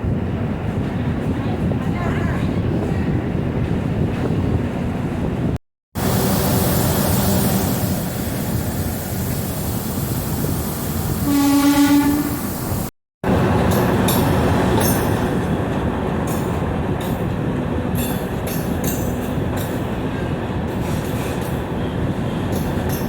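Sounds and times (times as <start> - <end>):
train running noise: 0.0 - 23.0
train horn: 11.2 - 12.6
wheels clacking over rail joints: 13.3 - 23.0.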